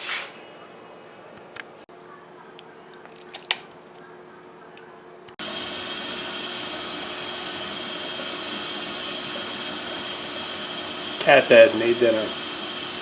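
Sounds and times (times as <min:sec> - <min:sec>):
machine whir with high whine: 0:05.4 - 0:13.0.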